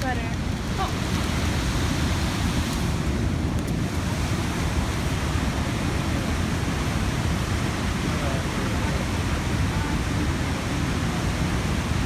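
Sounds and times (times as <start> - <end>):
creek and waterfall rushing: 0.0 - 12.0
wind rumbling on microphone: 0.0 - 12.0.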